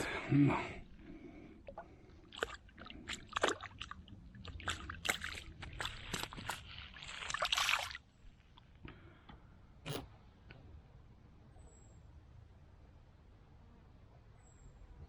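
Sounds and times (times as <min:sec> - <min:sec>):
water splashing and sloshing: 0:01.6 - 0:08.7.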